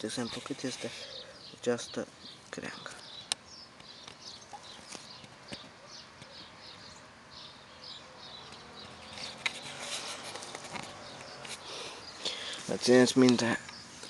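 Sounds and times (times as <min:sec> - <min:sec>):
leaves rustling near microphone: 0:00.0 - 0:14.0
small birds chirping: 0:00.0 - 0:14.0.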